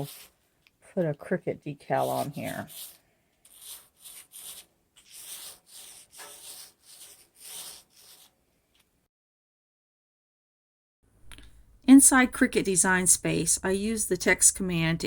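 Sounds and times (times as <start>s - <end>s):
paint brush rubbing strokes: 2.0s - 8.4s.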